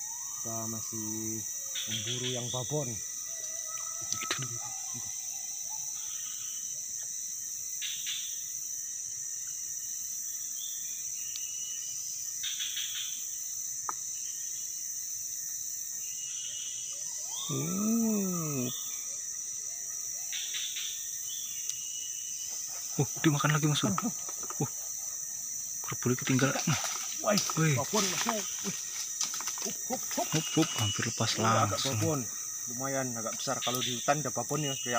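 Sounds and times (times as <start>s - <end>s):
insects droning: 0.0s - 34.9s
bird-like chirps: 29.9s - 32.5s.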